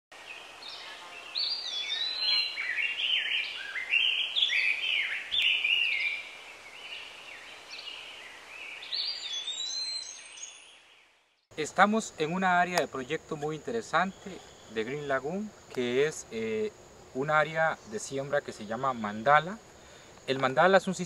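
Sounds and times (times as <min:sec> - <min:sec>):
faint outdoor hiss: 0:00.1 - 0:21.0
songbird whistling: 0:00.7 - 0:06.3, 0:08.7 - 0:10.9.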